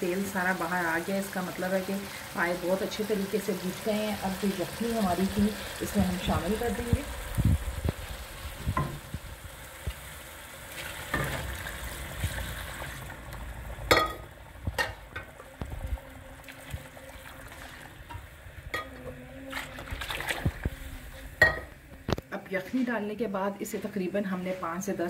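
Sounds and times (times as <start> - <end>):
meat sizzling in oil: 0.0 - 18.0
liquid pouring into a pot: 10.7 - 18.2.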